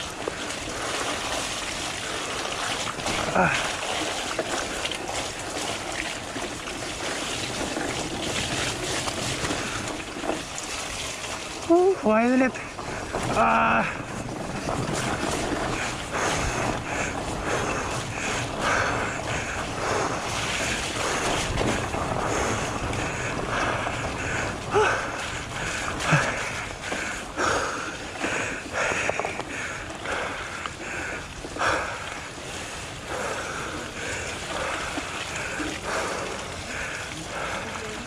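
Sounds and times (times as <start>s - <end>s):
bike knocking and rattling: 0.0s - 38.0s
tyres rolling over ground: 0.0s - 38.0s
wind rushing over microphone: 12.5s - 36.6s.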